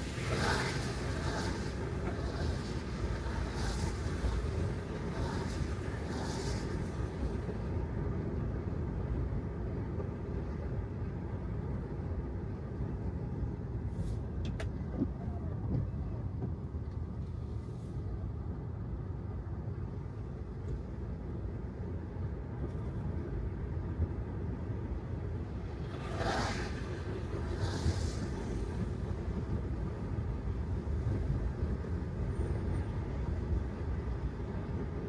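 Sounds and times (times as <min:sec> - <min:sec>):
hissing swishes: 0:00.0 - 0:07.4, 0:25.8 - 0:28.9
tyre road noise on wet pavement: 0:00.0 - 0:17.9, 0:21.9 - 0:35.0.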